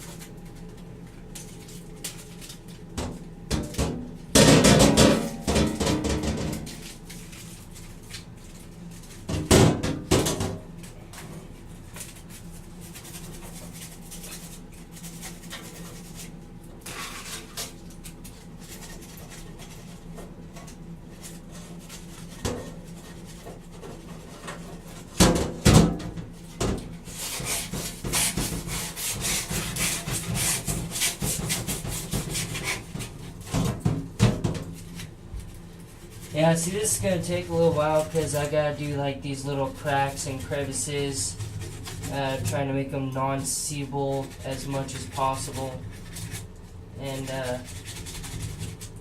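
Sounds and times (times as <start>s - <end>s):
foil scrubbing metal pipe: 11.9s - 49.0s.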